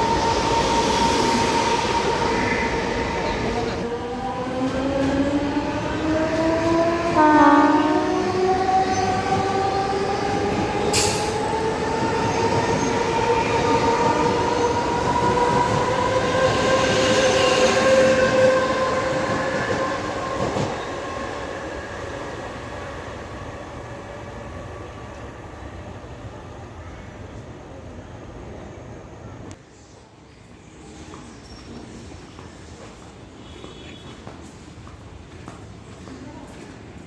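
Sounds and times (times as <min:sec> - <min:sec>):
train horn blast: 0:07.0 - 0:08.4.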